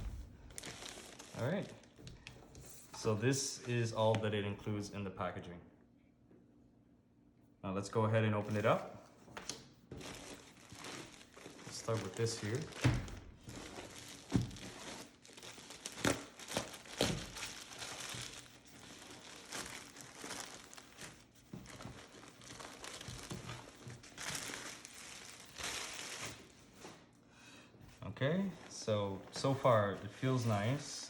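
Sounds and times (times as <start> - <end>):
plastic packaging crinkling: 0.0 - 2.4, 9.9 - 26.6.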